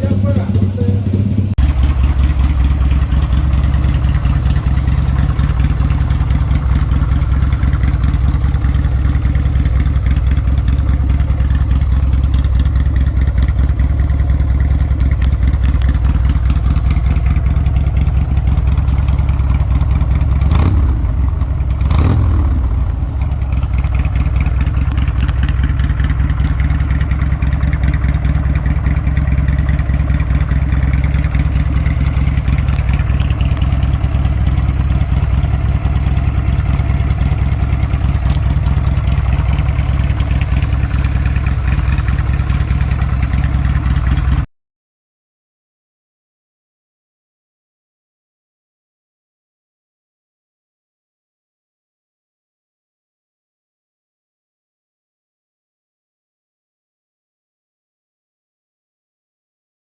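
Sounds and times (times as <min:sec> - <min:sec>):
motorcycle engine idling: 0:00.0 - 0:44.5.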